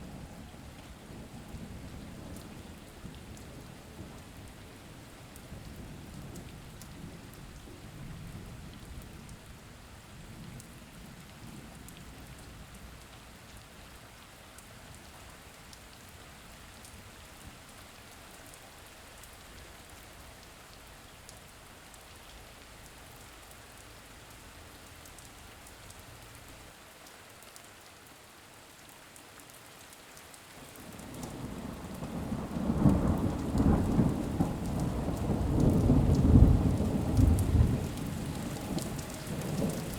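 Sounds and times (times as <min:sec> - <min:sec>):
steady rain: 0:00.0 - 0:39.9
rolling thunder: 0:31.3 - 0:39.9.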